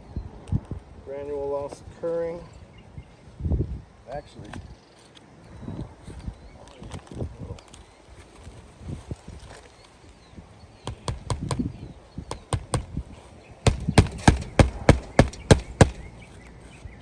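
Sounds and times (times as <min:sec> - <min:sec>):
hammer striking nails: 0:13.7 - 0:16.2.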